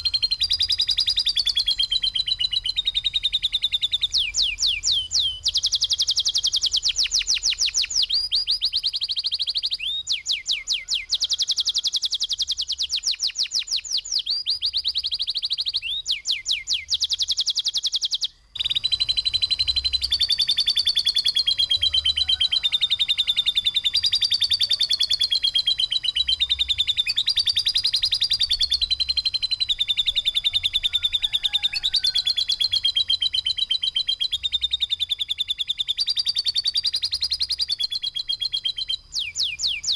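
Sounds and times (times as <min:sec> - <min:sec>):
bird fast trill: 0:00.0 - 0:39.9
songbird song with sharp high notes: 0:00.0 - 0:39.9.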